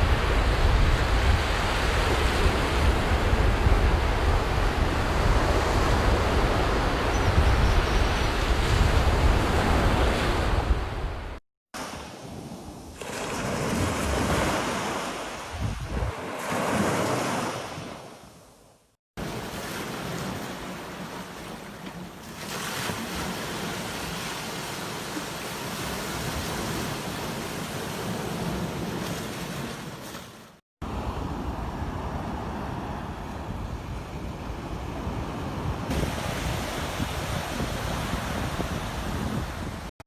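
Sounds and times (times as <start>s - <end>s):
sea waves breaking on beach: 0.0s - 7.4s, 8.0s - 18.3s, 19.2s - 39.9s
wind rumble on microphone: 0.0s - 11.4s, 15.5s - 16.2s, 30.8s - 39.9s.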